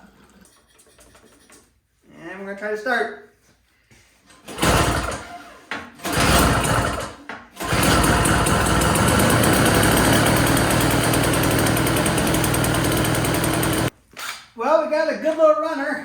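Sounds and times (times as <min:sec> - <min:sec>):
snowblower engine starting and running: 0:04.4 - 0:13.9.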